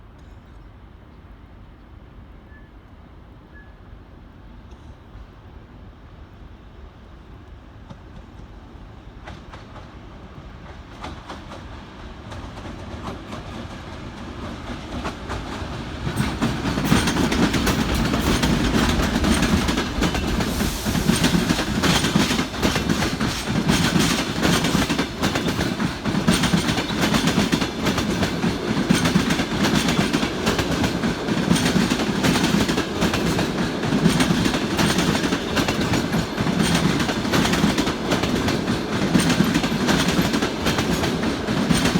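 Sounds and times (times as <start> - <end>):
diesel locomotive rumble: 16.0 - 41.9
wheels clattering over rail joints: 16.1 - 41.9.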